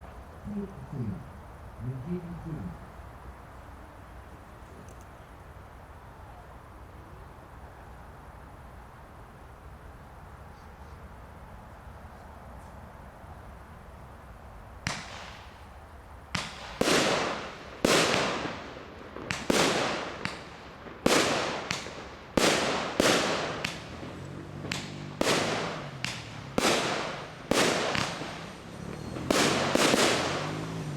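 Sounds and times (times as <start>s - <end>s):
firework bangs with echo: 14.8s - 15.7s, 16.3s - 30.9s.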